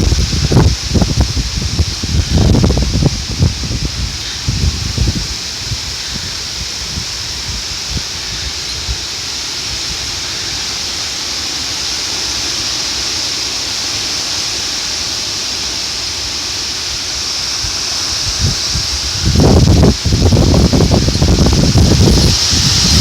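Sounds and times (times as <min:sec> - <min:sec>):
wind gust hitting microphone: 0:00.0 - 0:10.6, 0:17.5 - 0:23.0
wind rumbling: 0:00.0 - 0:11.4, 0:16.7 - 0:23.0
heavy rain pouring: 0:00.0 - 0:23.0.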